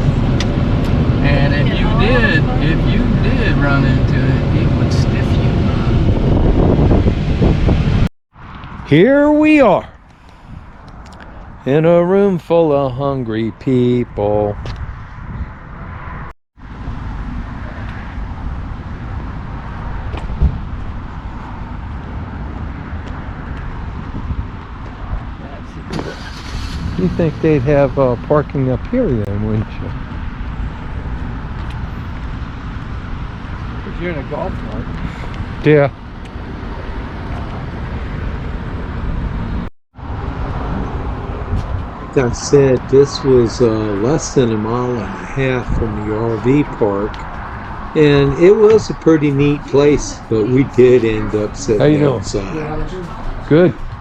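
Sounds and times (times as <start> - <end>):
vehicle road rumble: 0.0 - 54.0
thump: 20.1 - 20.6.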